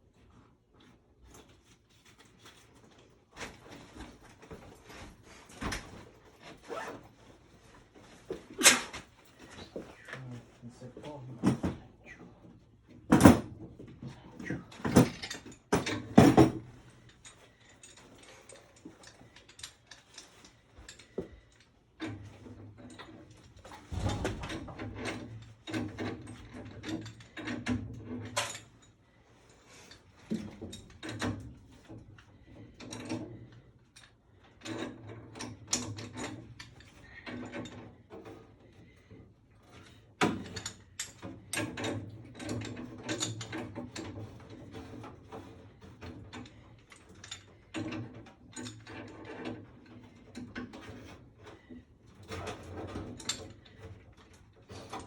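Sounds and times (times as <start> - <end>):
tools clicking and rattling: 39.6 - 55.0.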